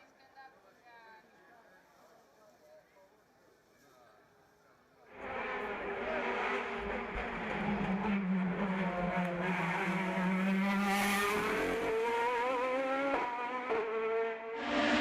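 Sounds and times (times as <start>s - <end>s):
race car engine accelerating: 5.1s - 15.0s.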